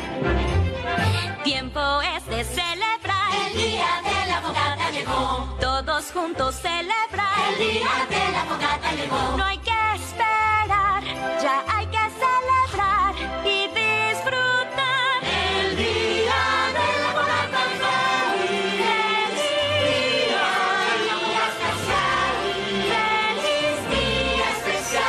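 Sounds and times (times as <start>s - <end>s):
choir singing: 3.2s - 5.6s, 7.0s - 9.6s, 14.8s - 25.0s.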